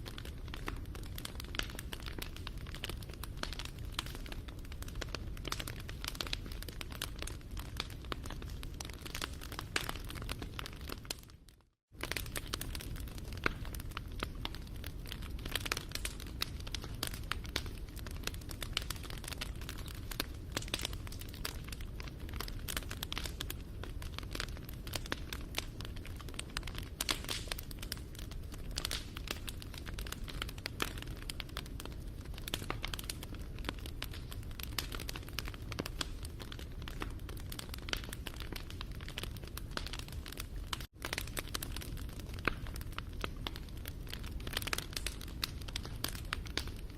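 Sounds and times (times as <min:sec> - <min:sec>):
wood fire crackling and popping: 0:00.0 - 0:46.9.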